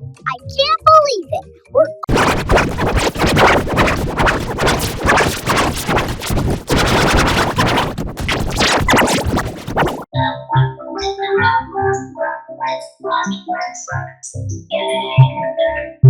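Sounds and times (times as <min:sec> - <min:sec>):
harsh distorted noise: 0:02.1 - 0:10.1.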